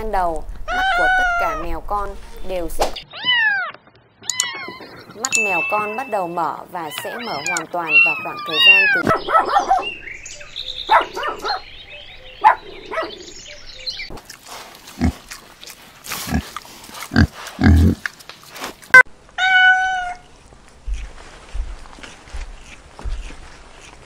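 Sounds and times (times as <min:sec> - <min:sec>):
cat meowing: 0:00.7 - 0:01.6, 0:03.1 - 0:04.9, 0:06.9 - 0:09.0, 0:19.4 - 0:20.3
kittens mewing: 0:06.8 - 0:09.2
piglets grunting and snuffling: 0:14.2 - 0:18.2.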